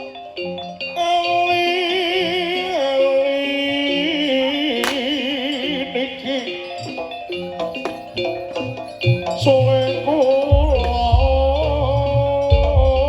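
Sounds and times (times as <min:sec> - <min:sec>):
gamelan music: 0:00.0 - 0:13.0
struck metallophone notes: 0:00.0 - 0:13.0
vibrato lead melody: 0:00.0 - 0:13.0
sharp crack: 0:04.8 - 0:05.4
drum: 0:10.5 - 0:13.0.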